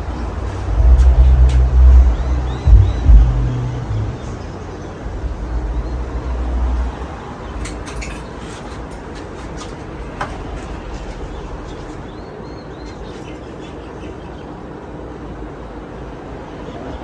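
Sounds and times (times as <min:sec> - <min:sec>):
low rumble: 0:00.0 - 0:07.3
ceiling fan whooshing hum: 0:00.0 - 0:16.5
faint ticks and chirps: 0:00.5 - 0:04.5.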